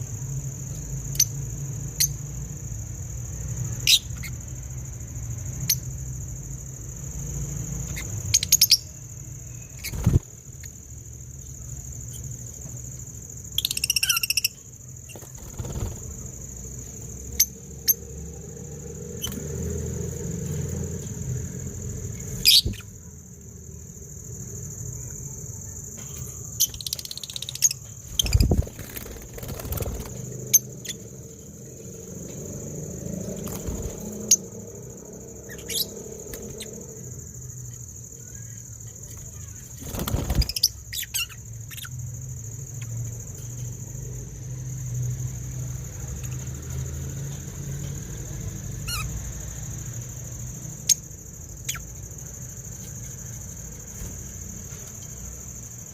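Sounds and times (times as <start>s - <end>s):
birds chirping: 13.0s - 19.6s, 22.0s - 23.0s, 26.5s - 42.0s.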